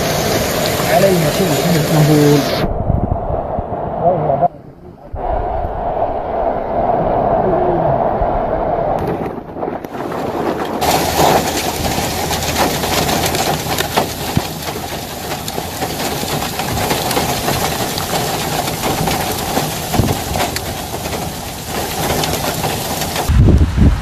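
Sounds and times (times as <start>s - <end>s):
hail and rain pelting down: 0.0s - 2.6s, 9.0s - 24.0s.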